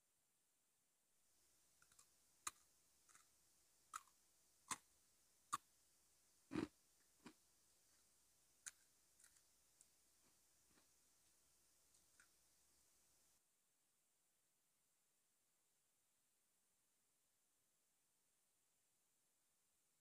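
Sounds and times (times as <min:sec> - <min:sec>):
biscuit sticks crunching: 0:08.6 - 0:09.9.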